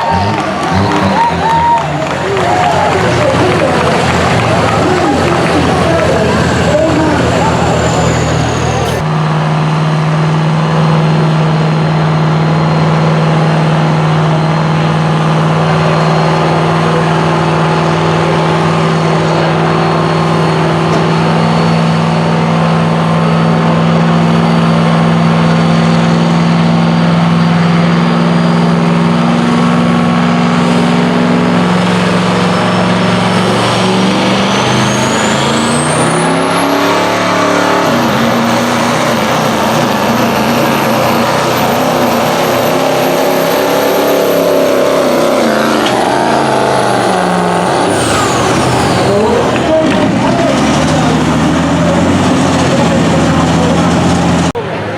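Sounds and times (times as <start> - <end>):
diesel truck engine at full load: 0.0 - 54.9.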